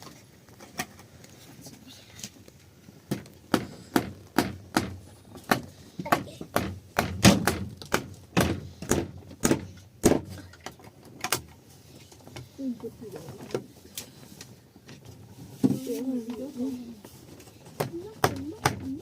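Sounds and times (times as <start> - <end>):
sharp knocks: 3.1 - 10.4.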